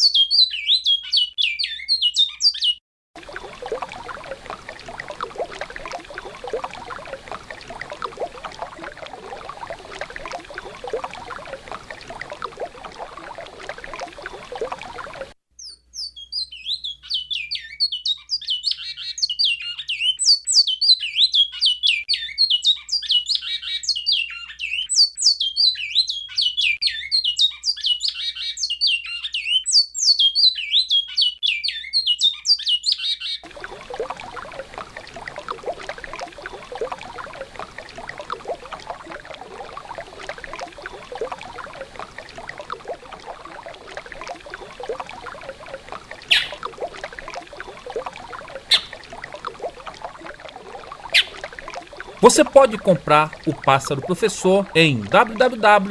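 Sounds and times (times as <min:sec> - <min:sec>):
finch singing whistled notes: 0:00.0 - 0:02.8, 0:46.3 - 0:46.6, 0:48.7 - 0:49.0, 0:51.1 - 0:51.4.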